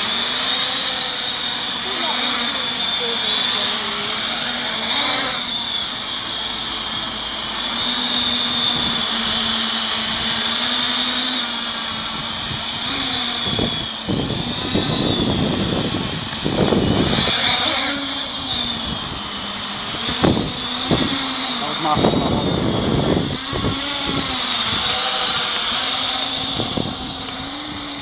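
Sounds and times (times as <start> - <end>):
drone propellers whining: 0.0 - 28.0
wind buffeting microphone: 11.9 - 28.0.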